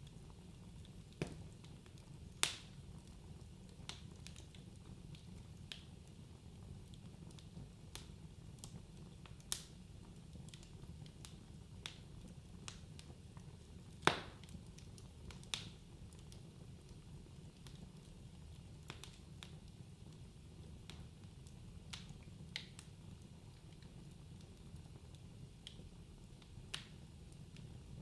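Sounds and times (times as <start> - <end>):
wood fire crackling: 0.0 - 28.0
sharp pops of burning logs: 1.2 - 2.7, 13.9 - 16.4, 26.7 - 27.0.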